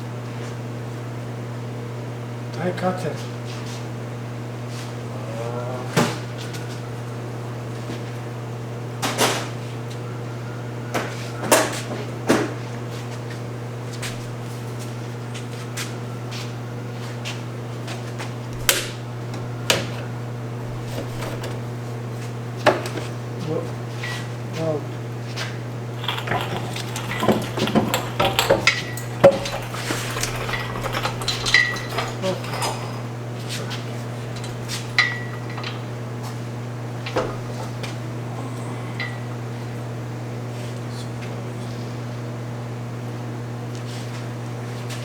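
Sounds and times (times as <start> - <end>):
hand tools clicking and clunking: 18.6 - 21.8, 26.0 - 38.0.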